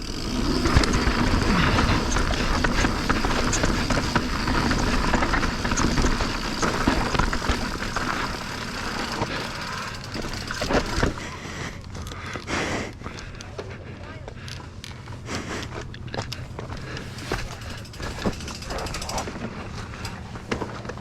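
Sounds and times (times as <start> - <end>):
bike rattling: 0.0 - 21.0
mountain bike riding noise: 0.0 - 21.0
tyres knocking over rocks: 0.4 - 11.2.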